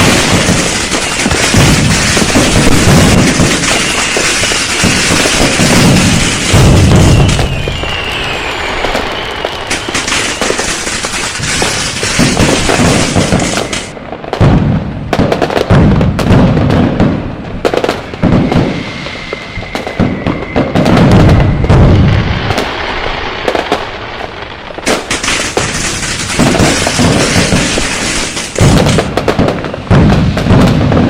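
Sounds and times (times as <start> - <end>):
high firework whistle: 0.0 - 14.0, 17.6 - 31.0
firecrackers crackling: 0.0 - 31.0
fireworks bangs and booms: 0.0 - 31.0.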